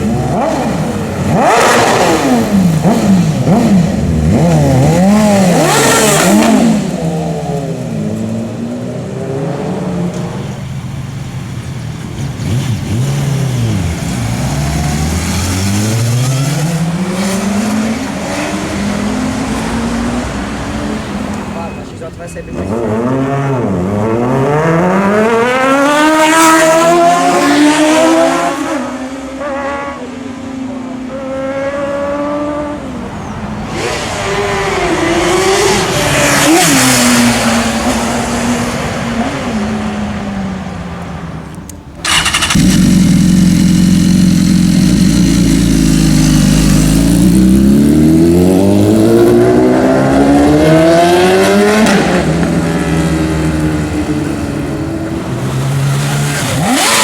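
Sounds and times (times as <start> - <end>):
motorcycles accelerating past: 22.7 - 33.0, 42.0 - 57.0.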